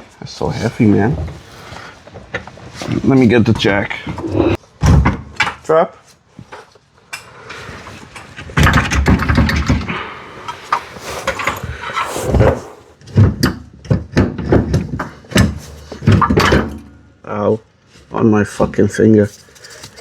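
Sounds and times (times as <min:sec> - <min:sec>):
tools clattering and scraping: 0:00.4 - 0:17.2, 0:19.2 - 0:20.0
metal knocks and clanks: 0:08.2 - 0:17.2.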